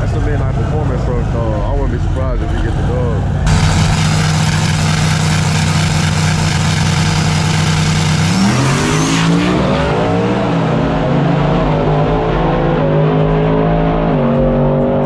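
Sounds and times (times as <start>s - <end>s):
truck engines revving high: 3.3s - 14.7s.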